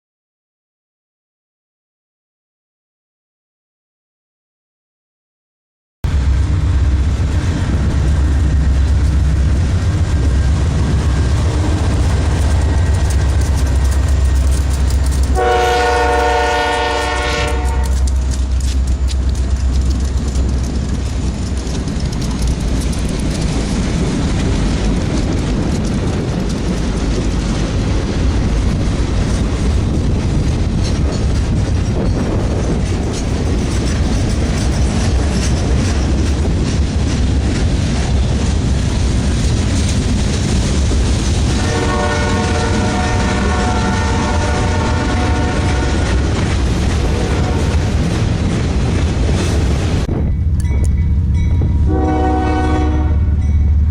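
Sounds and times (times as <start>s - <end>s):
diesel locomotive rumble: 6.0s - 53.9s
railcars clattering: 6.1s - 53.9s
train horn blast: 15.3s - 18.2s, 41.5s - 46.4s, 51.7s - 53.5s.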